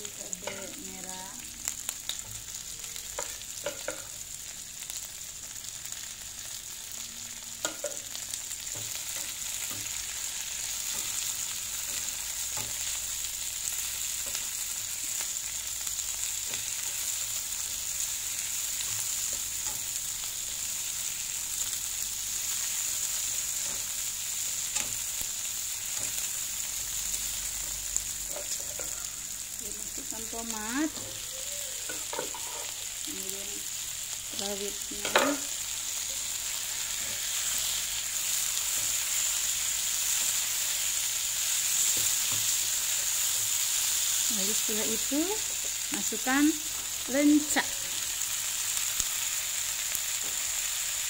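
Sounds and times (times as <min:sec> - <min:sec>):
vegetables sizzling in hot oil: 0:00.0 - 0:51.0
spatula scraping and tapping a pan: 0:03.2 - 0:04.1, 0:31.8 - 0:32.8, 0:35.0 - 0:35.5.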